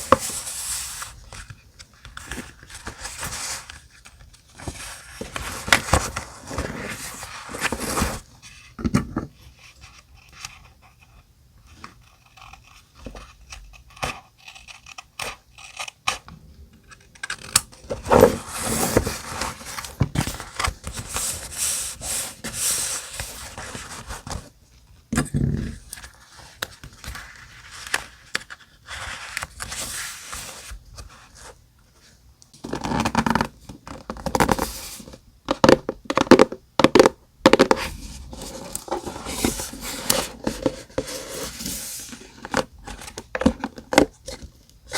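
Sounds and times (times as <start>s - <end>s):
paper rustling and scraping: 0.0s - 8.8s, 17.4s - 24.5s, 37.8s - 43.7s.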